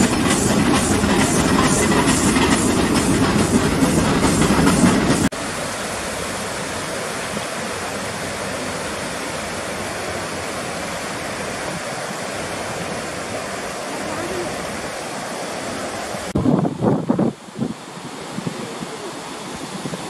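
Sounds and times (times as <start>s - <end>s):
train rumble with wheel clatter: 0.0s - 18.4s.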